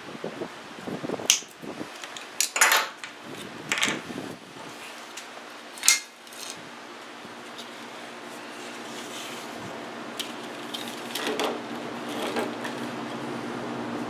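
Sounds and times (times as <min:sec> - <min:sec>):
metal tools clinking: 0:02.4 - 0:03.1.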